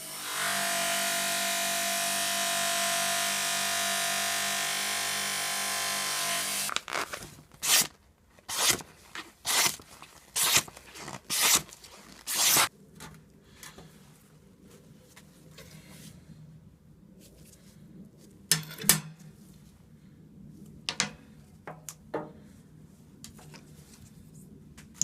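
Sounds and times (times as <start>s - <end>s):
power tool running: 0.0s - 6.7s
rasping rubbing strokes: 10.4s - 12.7s.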